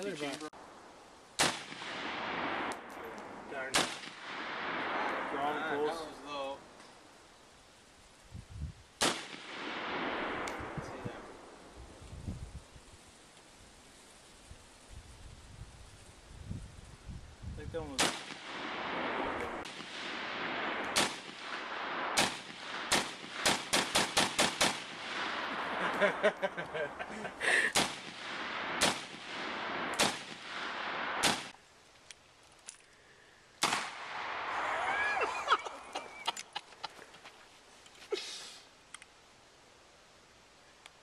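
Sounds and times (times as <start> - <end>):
gunshots: 1.4 - 6.0, 9.0 - 11.4, 17.9 - 26.2, 27.5 - 31.6, 33.6 - 34.9.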